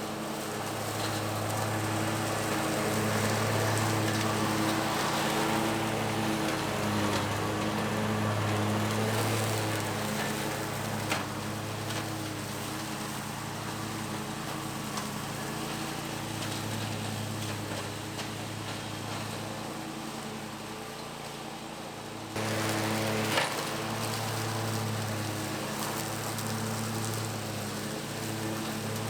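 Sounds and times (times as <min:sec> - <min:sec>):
mower engine and blades running: 0:00.0 - 0:29.0
debris ticking on mower deck: 0:22.4 - 0:29.0.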